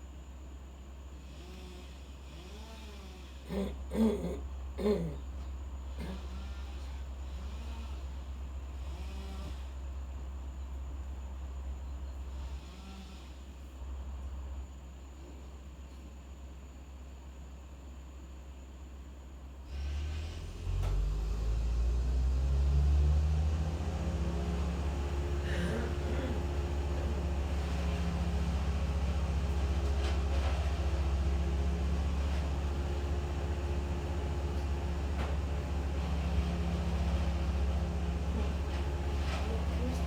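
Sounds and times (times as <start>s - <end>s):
engine running: 19.7s - 40.0s.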